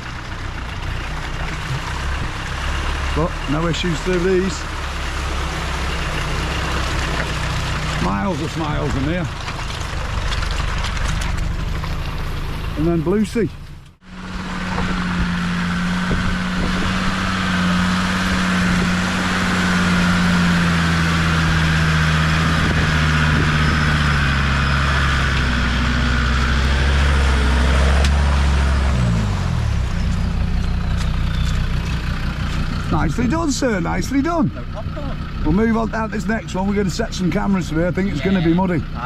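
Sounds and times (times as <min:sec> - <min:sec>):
off-road vehicle engine running: 0:00.0 - 0:39.0.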